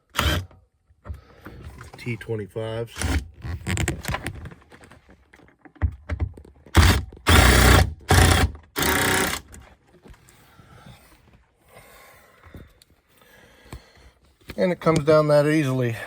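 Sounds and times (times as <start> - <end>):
power driver backing out screws: 0.1 - 0.5, 6.8 - 9.6.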